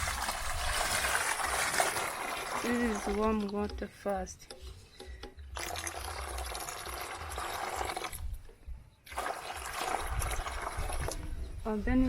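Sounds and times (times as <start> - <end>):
water pouring into a basin: 0.0 - 3.6, 5.5 - 8.4, 9.0 - 11.2.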